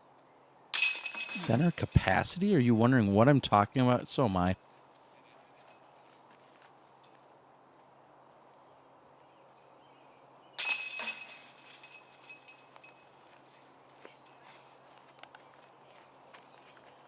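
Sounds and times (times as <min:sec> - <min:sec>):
disc striking metal basket: 0:00.8 - 0:02.1, 0:10.6 - 0:12.4
chains jangling: 0:00.8 - 0:02.2, 0:10.6 - 0:13.2.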